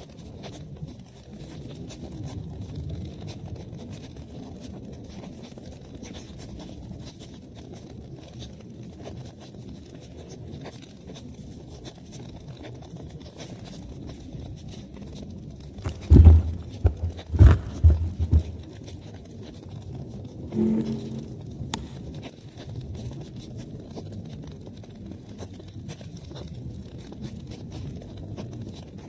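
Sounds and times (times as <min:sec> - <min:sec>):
wood fire crackling: 0:15.8 - 0:18.7
loud low thumps: 0:15.9 - 0:18.6, 0:20.5 - 0:21.7
low rumble: 0:20.5 - 0:21.8.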